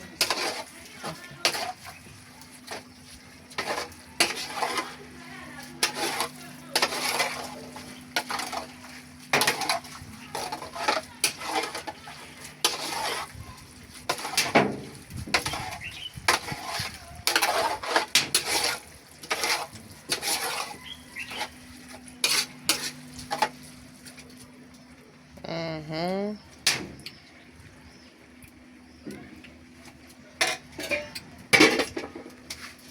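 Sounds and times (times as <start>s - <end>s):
spoon scraping a cooking pot: 0.0s - 2.9s, 3.5s - 5.0s, 5.6s - 13.4s, 14.0s - 14.6s, 15.3s - 23.7s
low steady hum: 0.0s - 32.9s.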